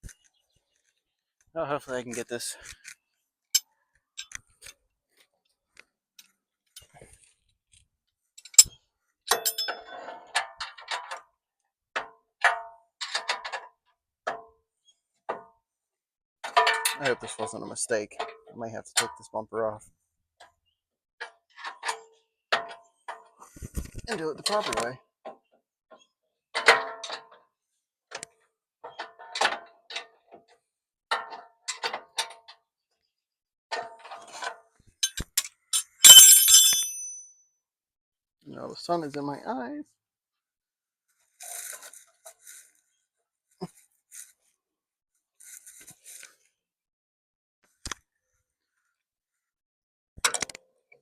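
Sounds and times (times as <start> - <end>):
wrench clinking on metal: 4.2 - 4.4, 8.4 - 9.9, 35.0 - 37.3.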